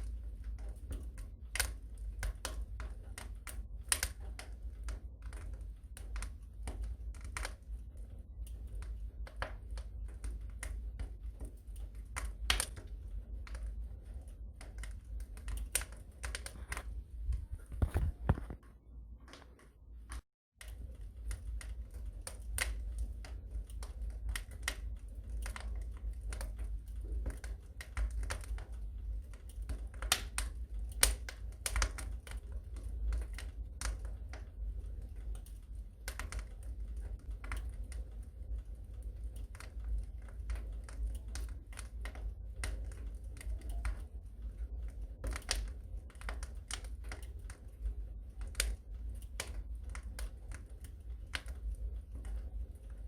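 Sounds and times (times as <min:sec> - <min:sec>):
low steady rumble: 0:00.0 - 0:53.0
wood fire crackling: 0:00.0 - 0:53.0.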